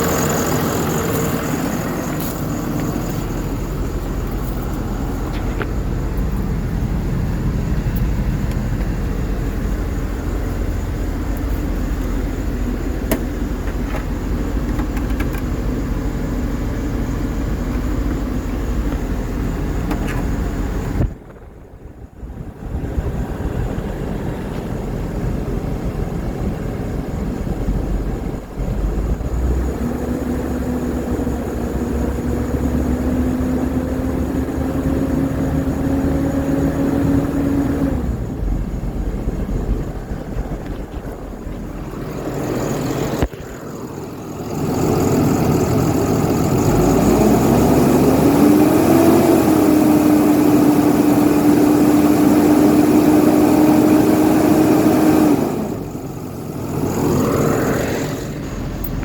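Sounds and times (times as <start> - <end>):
diesel truck engine rumble: 0.0 - 59.0.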